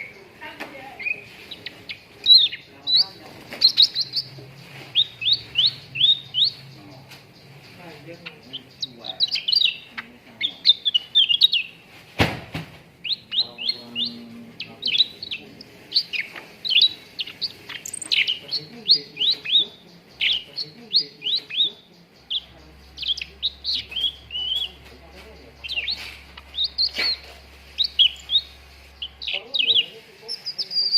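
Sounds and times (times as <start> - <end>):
bird chirping and whistling: 4.9 - 6.7, 8.5 - 11.7, 13.0 - 24.8, 25.6 - 30.9.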